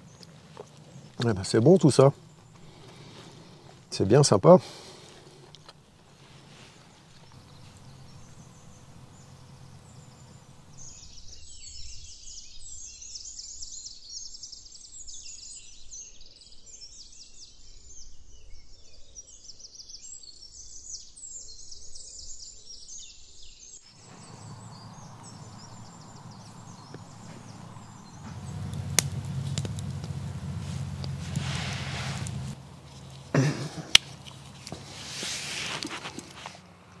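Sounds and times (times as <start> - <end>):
small birds chirping: 0.0 - 37.0
faint low hum: 6.1 - 11.2.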